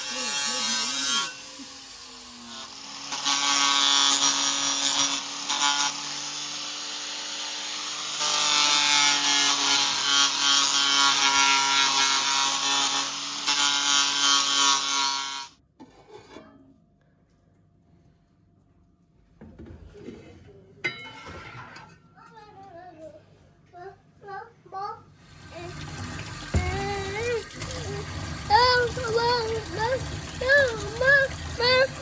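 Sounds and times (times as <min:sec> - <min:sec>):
small machine grinding and humming: 0:00.0 - 0:15.6, 0:25.2 - 0:32.0.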